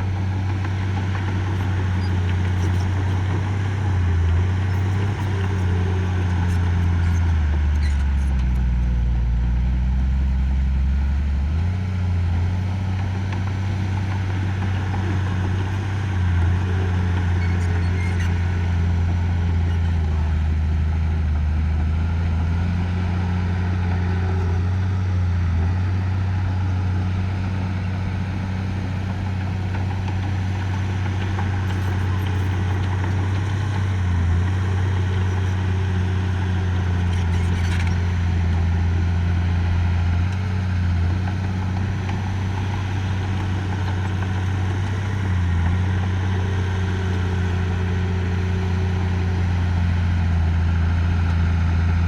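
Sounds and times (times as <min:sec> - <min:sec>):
heavy machine engine running: 0:00.0 - 0:52.0.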